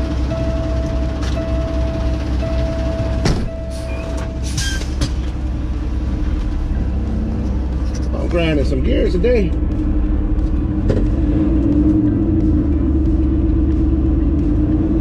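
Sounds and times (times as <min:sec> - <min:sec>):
mid-pitched tone: 0:00.0 - 0:04.4
diesel truck engine humming: 0:00.0 - 0:15.0
sharp clunk: 0:03.2 - 0:03.6.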